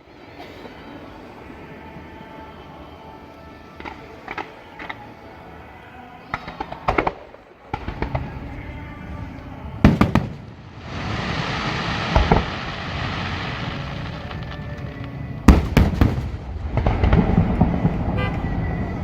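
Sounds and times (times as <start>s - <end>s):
fireworks bangs: 6.3s - 19.0s
fireworks crackle: 6.3s - 19.0s.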